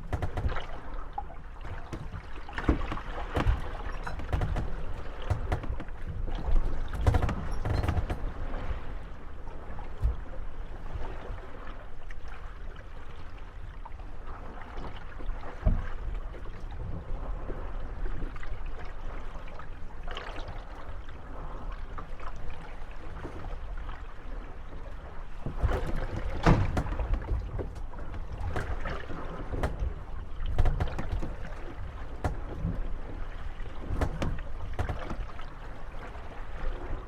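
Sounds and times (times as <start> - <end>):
boat hulls knocking together: 0.0 - 9.2, 9.8 - 10.4, 15.6 - 16.6, 25.1 - 37.0
water lapping: 0.0 - 37.0.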